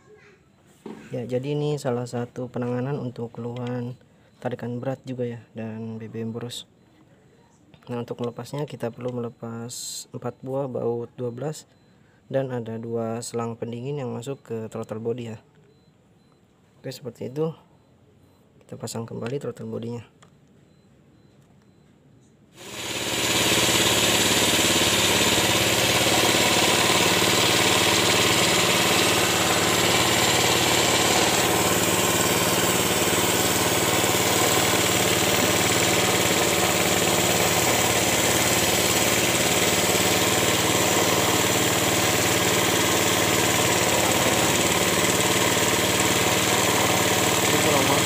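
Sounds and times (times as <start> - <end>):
car engine idling: 22.6 - 48.0.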